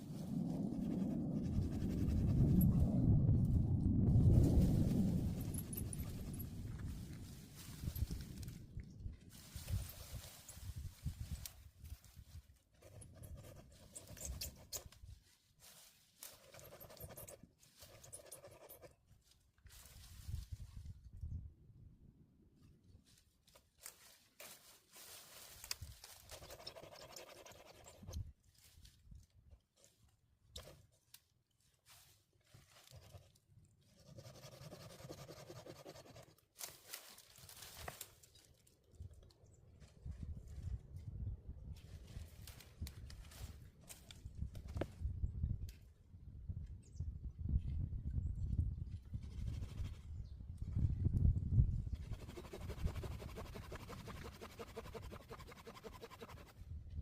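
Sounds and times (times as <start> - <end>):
hand saw cutting: 52.0 - 56.6.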